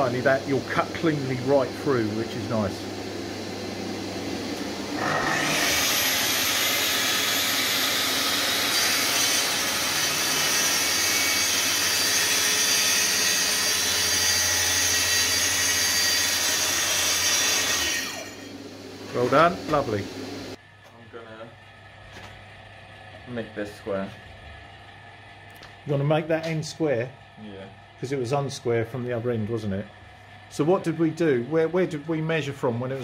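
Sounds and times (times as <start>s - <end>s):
circular saw cutting board: 4.6s - 20.6s.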